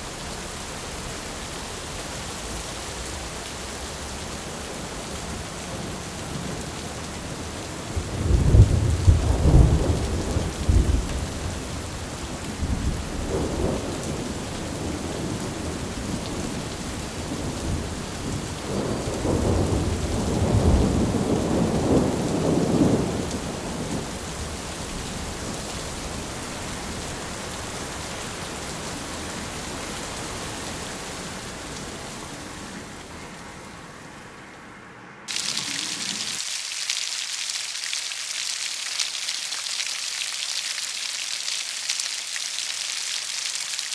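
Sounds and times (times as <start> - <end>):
heavy rain: 0.0 - 43.9
rolling thunder: 7.9 - 25.6.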